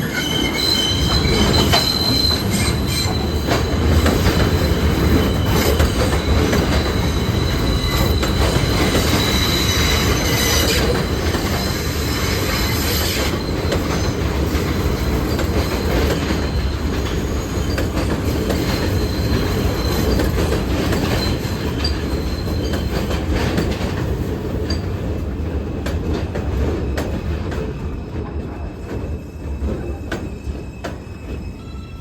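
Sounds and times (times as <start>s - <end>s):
high wheel squeal: 0.0s - 23.1s, 29.1s - 32.0s
subway train rumbling on rails: 0.0s - 32.0s.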